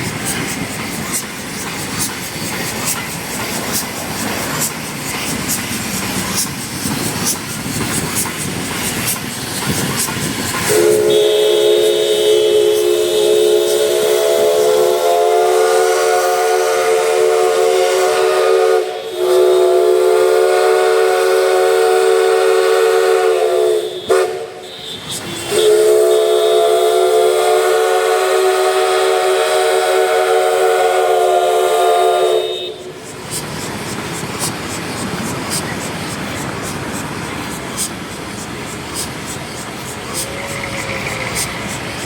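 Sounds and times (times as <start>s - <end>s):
steam locomotive whistle blasts: 10.6s - 33.4s.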